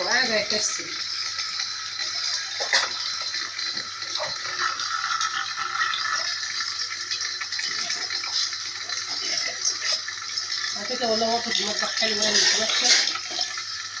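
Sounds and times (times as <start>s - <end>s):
tap water running: 0.0s - 14.0s
dishes clattering: 2.3s - 6.3s.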